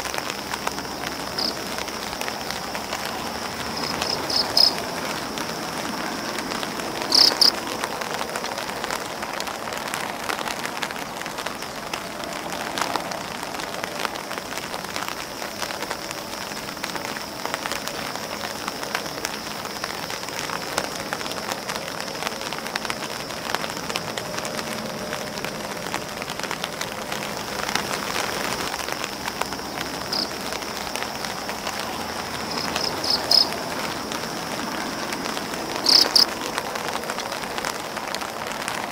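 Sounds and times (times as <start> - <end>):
insect chirps: 0.0 - 38.8
rain pattering on an umbrella: 0.0 - 38.9
insect buzzing: 3.7 - 5.3, 7.0 - 7.5, 32.4 - 33.6, 35.8 - 36.2.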